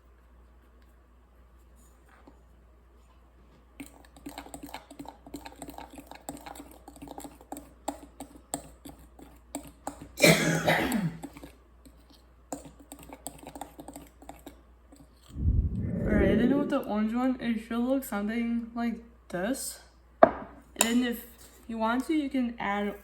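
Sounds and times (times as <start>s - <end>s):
spoon scraping bowl: 3.8s - 10.1s, 11.2s - 15.4s.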